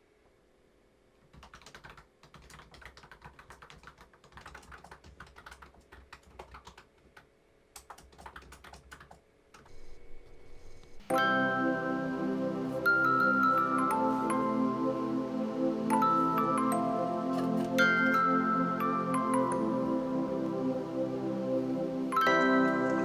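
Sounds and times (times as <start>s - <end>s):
keyboard key clicks: 1.3s - 9.7s.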